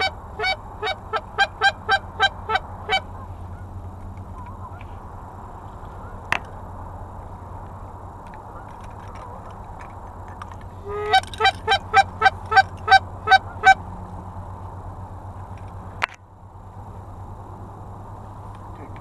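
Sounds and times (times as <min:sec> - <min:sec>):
short honking calls: 0:00.0 - 0:05.1, 0:10.7 - 0:13.9
steady low hum: 0:00.0 - 0:19.0.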